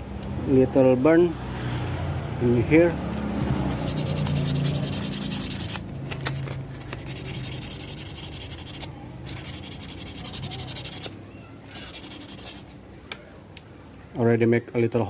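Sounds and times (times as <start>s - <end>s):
sandpaper scratching metal: 3.7s - 5.9s, 6.8s - 12.7s.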